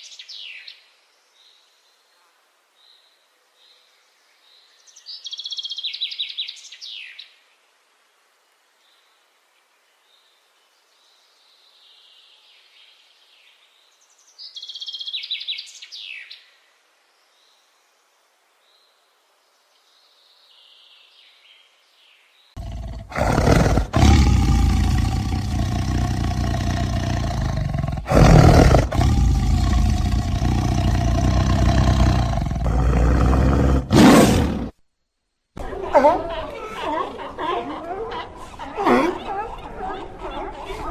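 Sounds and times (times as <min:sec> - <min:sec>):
small birds chirping: 0:18.7 - 0:34.7
big cat roaring and growling: 0:22.6 - 0:34.7.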